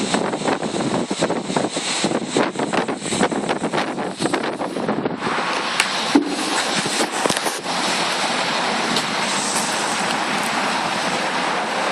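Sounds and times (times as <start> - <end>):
strong wind on microphone: 0.0 - 11.9
sharp knocks: 6.2 - 7.0.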